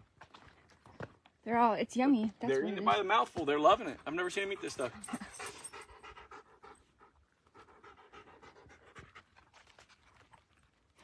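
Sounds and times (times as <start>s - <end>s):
dog panting: 4.1s - 10.3s.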